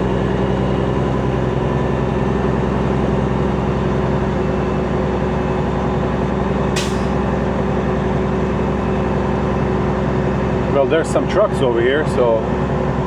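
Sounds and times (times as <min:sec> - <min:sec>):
diesel truck engine running: 0:00.0 - 0:13.0
short air hiss: 0:06.8 - 0:07.2.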